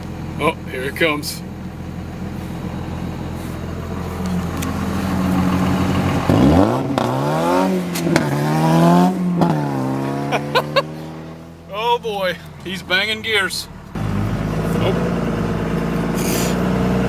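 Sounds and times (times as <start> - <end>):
car engine revving through gears: 2.2 - 11.8, 13.8 - 17.0.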